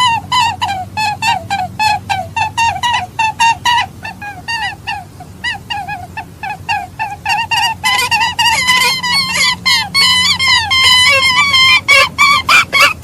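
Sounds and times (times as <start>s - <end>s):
birds giving rapid calls: 0.0s - 13.0s.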